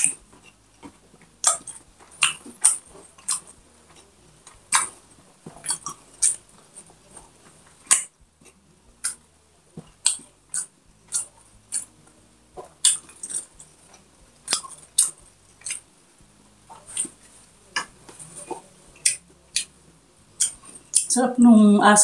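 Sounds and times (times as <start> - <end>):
wet mouth clicks: 0.0 - 6.4, 7.0 - 9.2, 9.8 - 11.9, 12.6 - 15.9, 16.7 - 19.8, 20.4 - 21.1
chewing food crunches: 0.0 - 12.0, 12.6 - 15.9.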